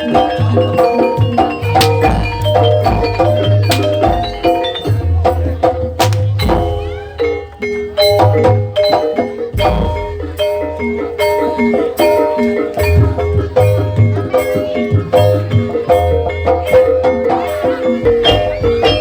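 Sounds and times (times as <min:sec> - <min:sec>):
metal mallet instruments ringing: 0:00.0 - 0:19.0
sharp drum strikes: 0:01.8 - 0:04.4, 0:06.0 - 0:06.8.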